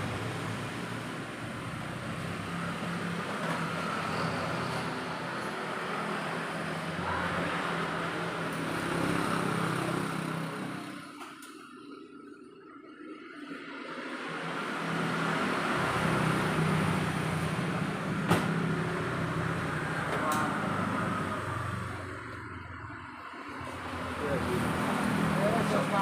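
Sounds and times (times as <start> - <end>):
engine running: 14.3 - 26.0.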